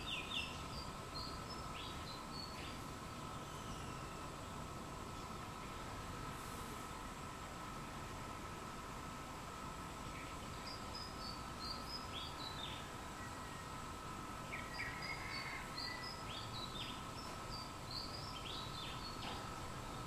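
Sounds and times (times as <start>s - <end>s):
small birds chirping: 0.0s - 5.9s, 9.9s - 13.8s, 14.4s - 20.0s.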